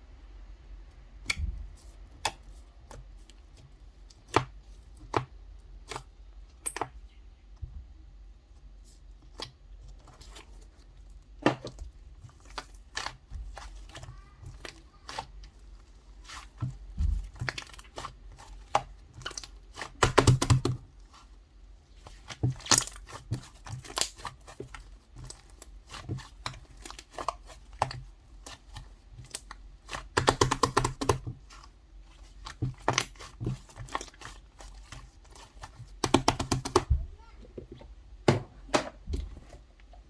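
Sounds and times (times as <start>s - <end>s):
slime squished by hand: 8.9s - 37.4s.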